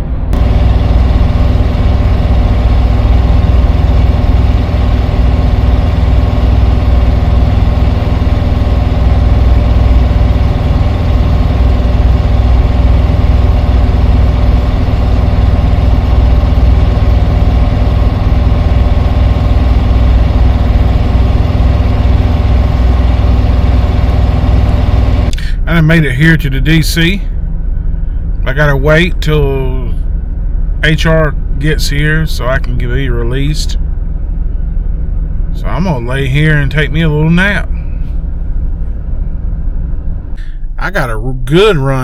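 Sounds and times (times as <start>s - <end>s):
van engine running: 0.0s - 42.0s.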